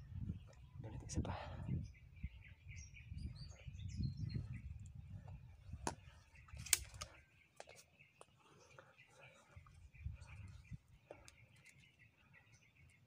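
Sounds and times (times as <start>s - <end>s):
birds chirping: 0.0s - 13.0s
sharp clicks: 6.6s - 7.1s.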